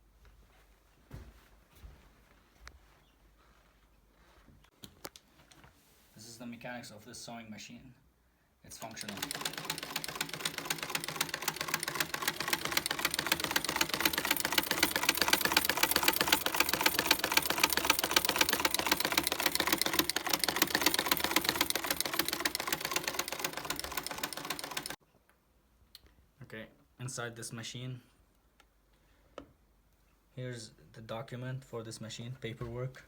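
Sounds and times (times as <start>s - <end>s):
sewing machine clattering: 8.7s - 25.0s.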